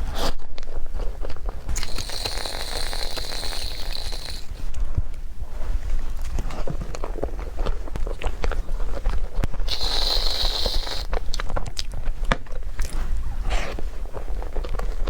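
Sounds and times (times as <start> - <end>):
close-miked chewing: 0.6 - 4.9, 5.8 - 15.0
short hiss: 9.7 - 11.1.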